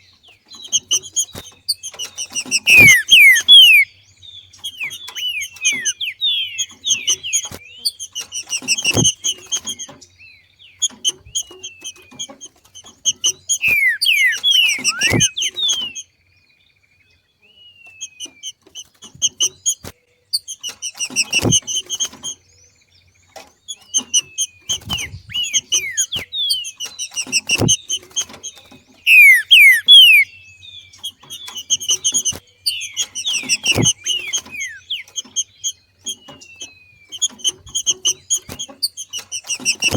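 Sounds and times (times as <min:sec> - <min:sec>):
bird chattering call: 0:00.0 - 0:10.0, 0:10.8 - 0:16.1, 0:23.7 - 0:39.9.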